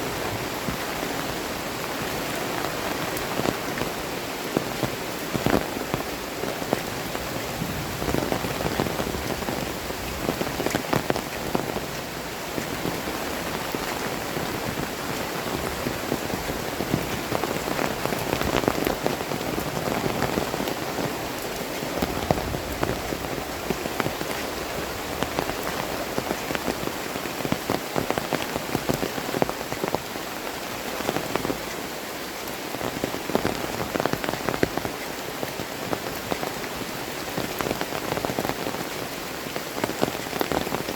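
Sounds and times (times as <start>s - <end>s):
heavy rain pouring: 0.0s - 40.9s
raindrops spattering: 0.1s - 31.8s.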